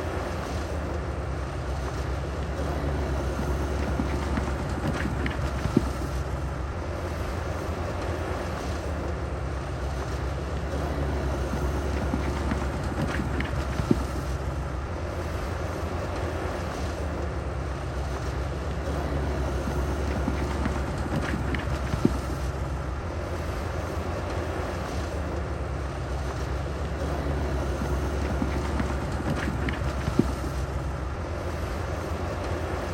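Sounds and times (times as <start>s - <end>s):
heavy diesel engine running: 0.0s - 32.9s.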